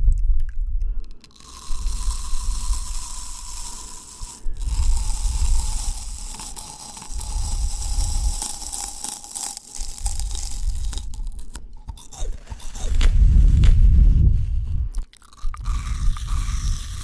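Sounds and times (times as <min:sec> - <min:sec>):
wet chewing of fruit: 0:00.0 - 0:13.8, 0:14.9 - 0:17.0
soft low jaw thuds: 0:10.6 - 0:16.5.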